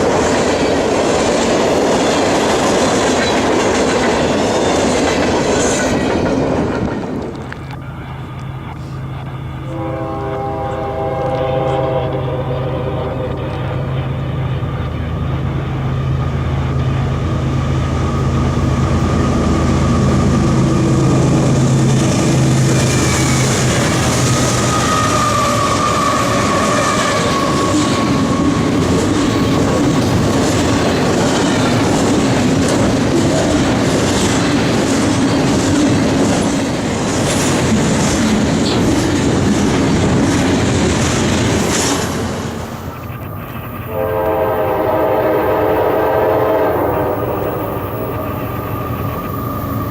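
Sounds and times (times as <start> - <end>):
train wheels clattering: 0.0 - 9.0, 17.9 - 46.1
diesel locomotive engine drone: 0.0 - 49.9
train horn: 9.6 - 14.0, 43.8 - 48.8
high wheel squeal: 22.7 - 29.6, 46.8 - 49.9.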